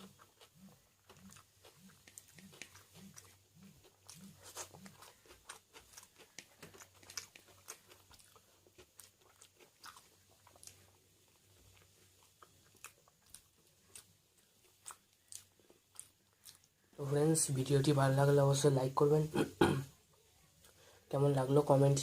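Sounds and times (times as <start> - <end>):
chewing and crunching food: 0.0 - 18.6, 19.8 - 21.2.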